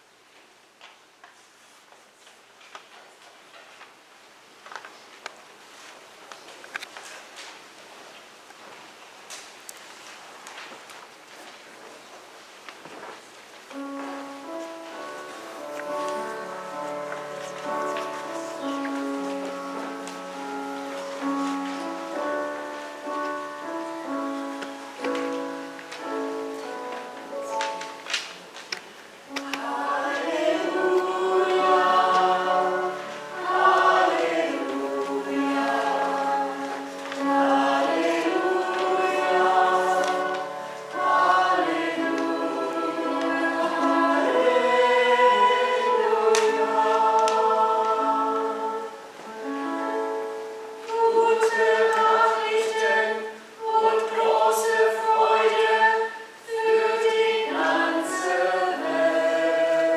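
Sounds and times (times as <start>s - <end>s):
choir singing in harmony: 13.7s - 28.6s, 29.3s - 59.9s.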